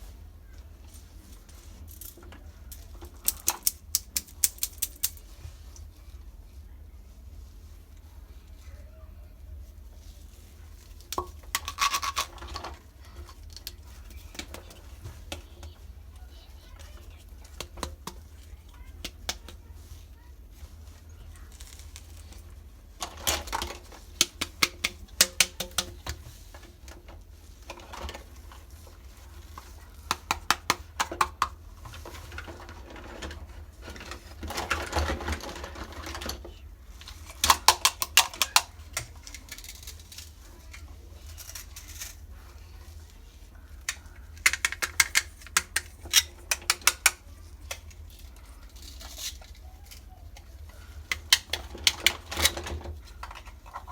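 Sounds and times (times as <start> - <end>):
rough handling noise: 0.0 - 53.9
plastic toy pieces clicking: 3.2 - 5.2, 37.4 - 40.3, 43.9 - 48.0.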